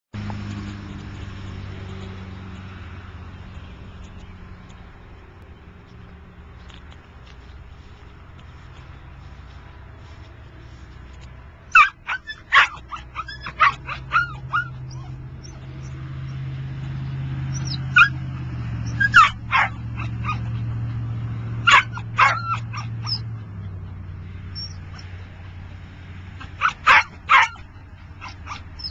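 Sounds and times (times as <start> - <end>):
dog barking and yipping: 11.7 - 16.0, 17.5 - 23.9, 24.5 - 25.3, 26.4 - 28.9.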